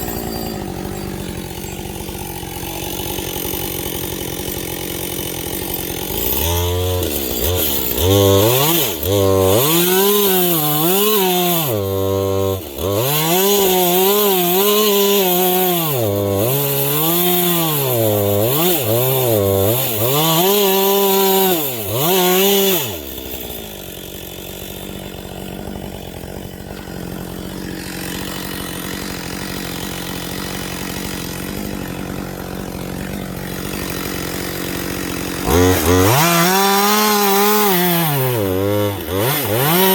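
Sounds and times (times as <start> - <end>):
chainsaw revving and bogging down: 0.0 - 39.9.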